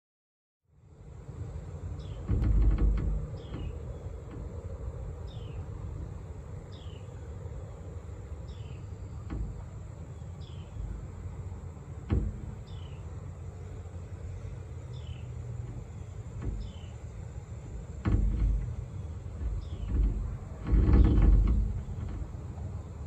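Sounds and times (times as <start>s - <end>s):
low thump: 2.1s - 4.6s, 9.2s - 10.1s, 12.0s - 13.0s, 15.6s - 17.0s, 17.6s - 22.7s.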